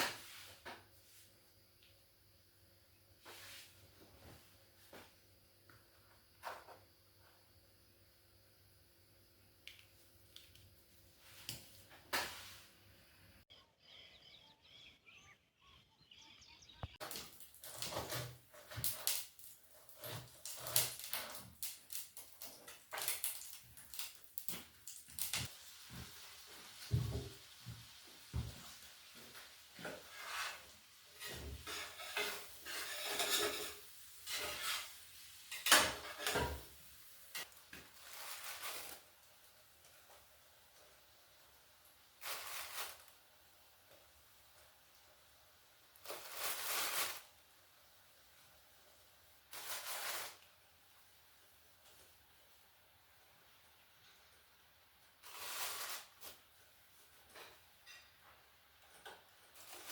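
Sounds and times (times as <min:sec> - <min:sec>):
dishes and cutlery clattering: 0:31.3 - 0:34.9.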